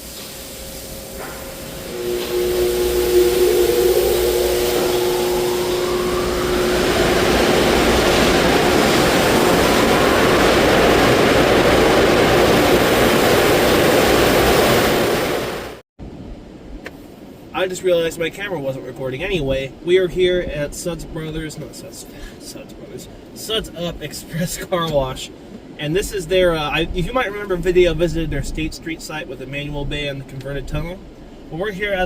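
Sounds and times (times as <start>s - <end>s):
blower dryers whining and rushing: 0.0s - 15.8s.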